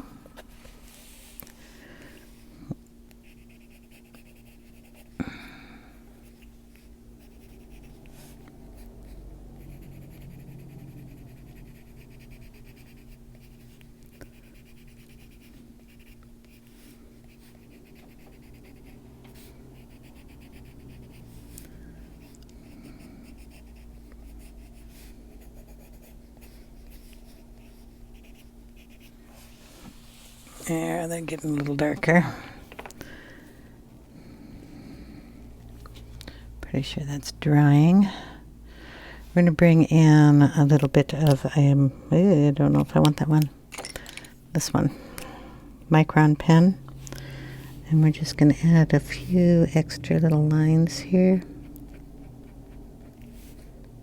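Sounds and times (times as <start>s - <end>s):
steady low hum: 0.0s - 54.0s
pencil scratching on paper: 3.2s - 5.2s, 6.2s - 29.6s, 50.9s - 53.7s.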